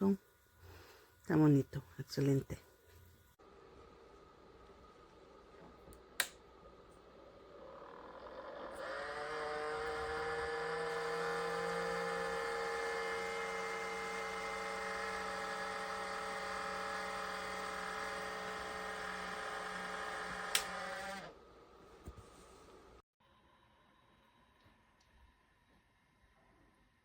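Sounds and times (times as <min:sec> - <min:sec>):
small electric motor whirring: 0:07.4 - 0:21.4
sharp click: 0:20.5 - 0:20.8.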